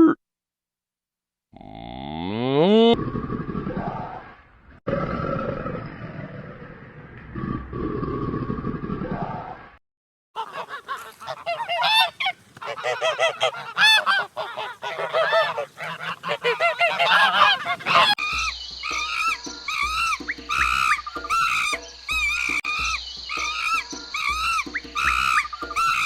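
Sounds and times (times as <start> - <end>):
evenly repeated bird calls: 10.4 - 26.0
farm birds honking: 10.4 - 26.0.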